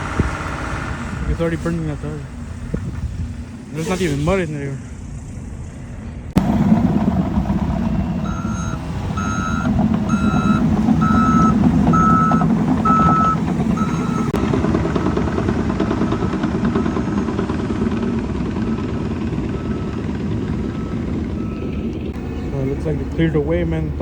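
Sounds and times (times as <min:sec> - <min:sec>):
diesel truck engine running: 0:00.0 - 0:24.0
truck reversing alarm beeping: 0:06.4 - 0:24.0.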